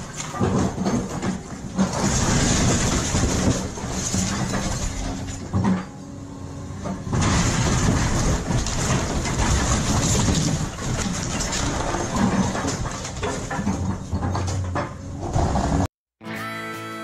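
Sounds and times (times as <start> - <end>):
heavy machinery engine running: 0.0 - 15.9.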